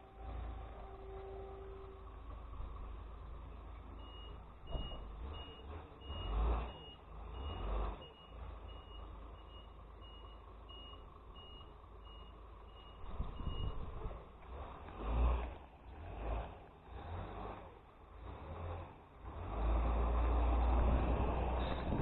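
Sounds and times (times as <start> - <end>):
truck engine rumble: 0.0 - 22.0
truck reversing alarm beeping: 3.9 - 14.0.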